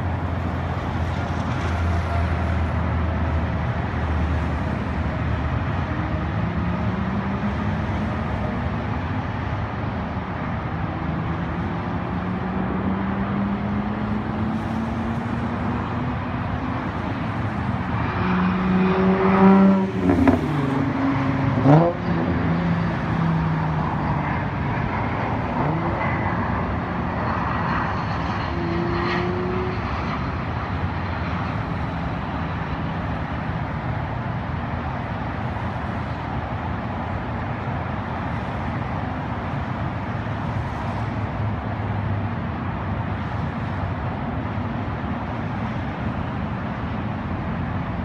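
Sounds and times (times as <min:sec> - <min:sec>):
road noise: 0:00.0 - 0:48.0
car engine revving: 0:18.1 - 0:22.6.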